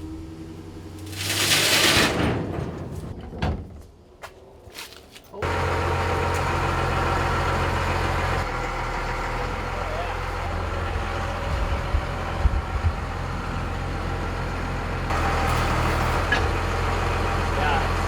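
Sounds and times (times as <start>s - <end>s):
truck engine running: 5.4s - 18.0s.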